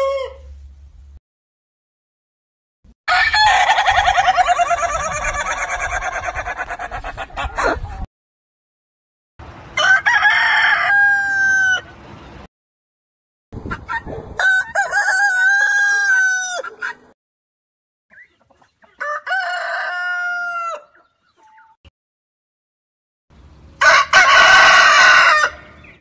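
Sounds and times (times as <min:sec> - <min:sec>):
rooster crowing: 0:00.0 - 0:00.5, 0:03.1 - 0:06.9, 0:09.8 - 0:12.0, 0:14.4 - 0:16.9, 0:19.0 - 0:21.0, 0:23.8 - 0:25.8.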